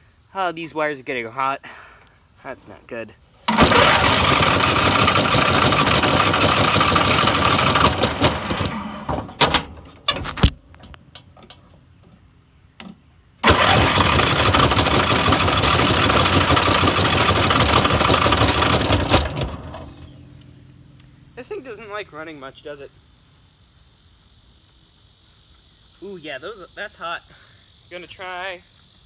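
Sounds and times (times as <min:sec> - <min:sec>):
engine starter spinning: 0:03.4 - 0:11.6, 0:13.4 - 0:20.5.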